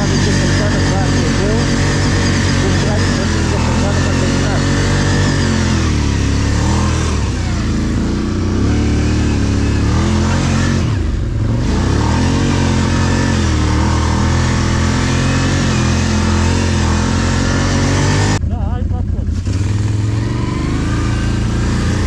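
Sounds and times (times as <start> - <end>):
atv engine revving under load: 0.0 - 22.0.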